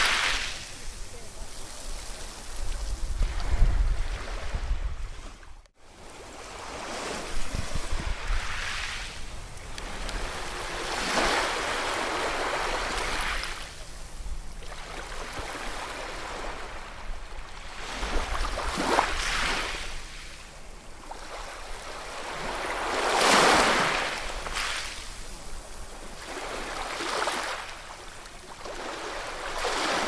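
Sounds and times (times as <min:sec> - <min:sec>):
sea waves breaking: 0:00.0 - 0:14.0, 0:21.1 - 0:25.4, 0:26.0 - 0:30.0.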